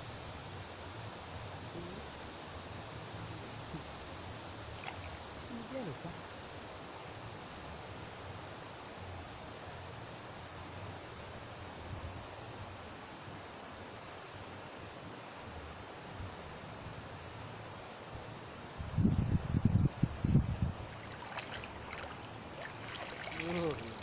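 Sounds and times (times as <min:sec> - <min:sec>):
even hiss: 0:00.0 - 0:24.0
high-pitched insect drone: 0:19.6 - 0:24.0.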